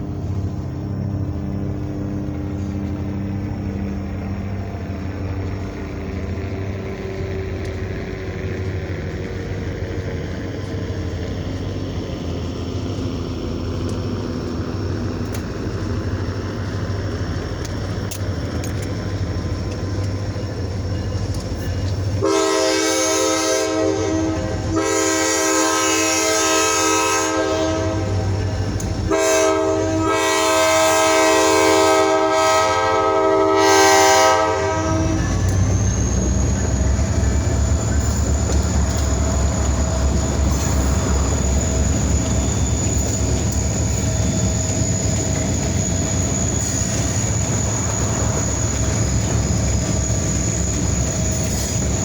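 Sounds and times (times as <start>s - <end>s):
locomotive engine rumble: 0.0s - 52.0s
locomotive air horn blasts: 22.2s - 35.8s.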